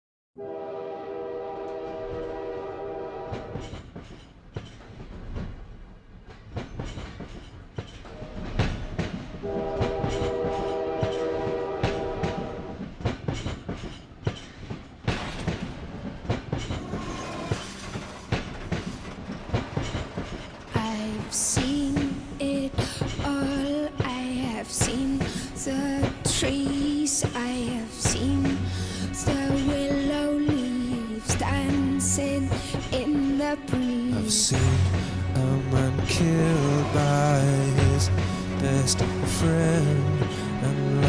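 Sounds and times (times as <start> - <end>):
train horn blasts: 0.4 - 3.7, 8.1 - 12.8
train wheels clattering: 3.2 - 41.0.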